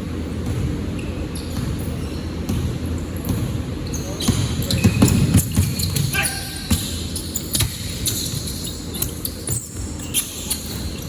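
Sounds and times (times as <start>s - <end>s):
basketball bouncing on court: 0.1s - 11.0s
shoe squeaks: 0.9s - 2.5s, 3.8s - 11.0s
players and spectators voices: 0.9s - 11.0s.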